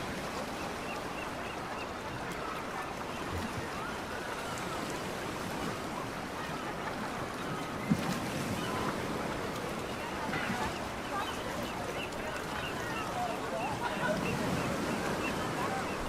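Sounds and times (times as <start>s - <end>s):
wind: 0.0s - 16.0s
faint distant voices: 0.6s - 16.0s.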